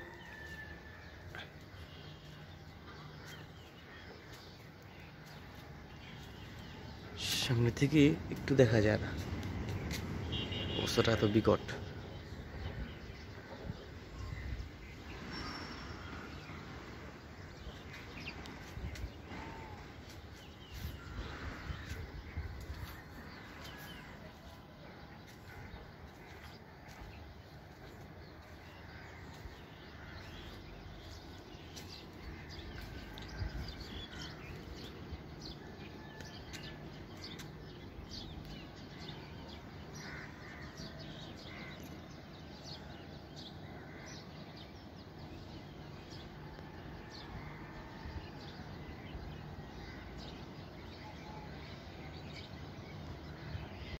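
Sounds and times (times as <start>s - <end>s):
outdoor background noise: 0.0s - 54.0s
birds chirping and calling: 11.8s - 54.0s.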